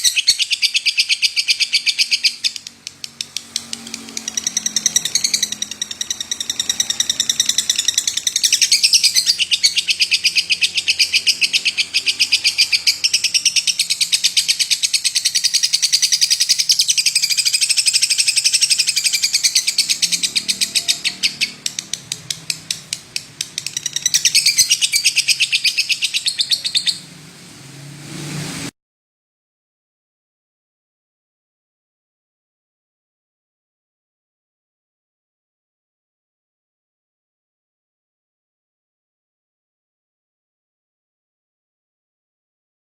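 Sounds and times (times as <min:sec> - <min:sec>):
lovebird trilling chirps: 0:00.0 - 0:27.1.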